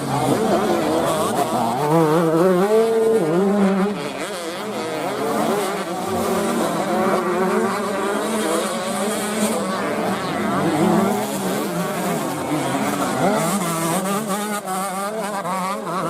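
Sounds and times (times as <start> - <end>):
motocross bikes revving: 0.0 - 16.0.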